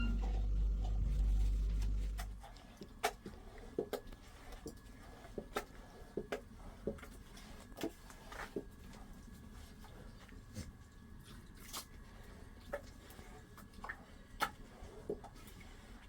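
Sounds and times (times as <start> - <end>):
faint steady high tone: 0.0 - 2.1
low hum: 0.0 - 2.6.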